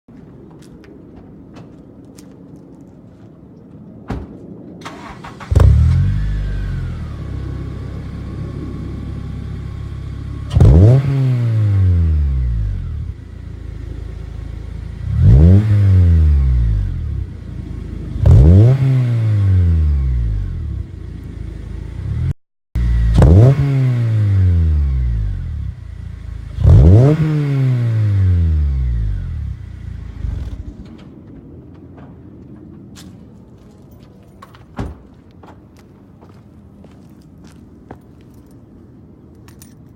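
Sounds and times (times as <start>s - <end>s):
car engine revving: 4.9s - 30.9s.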